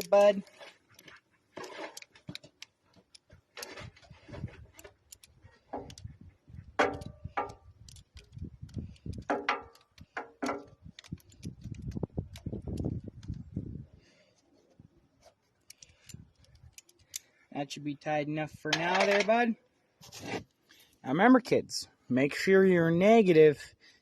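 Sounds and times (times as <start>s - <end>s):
pliers clicking on metal clamp: 6.8s - 13.4s.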